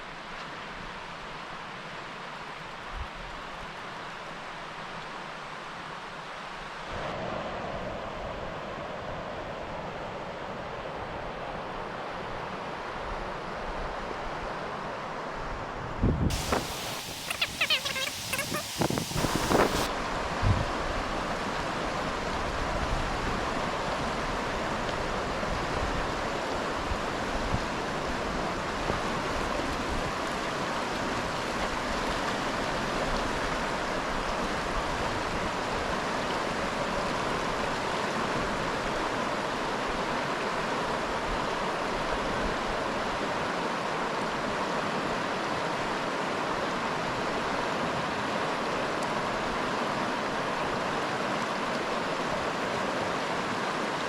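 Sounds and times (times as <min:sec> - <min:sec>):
river water rushing: 0:16.3 - 0:54.0.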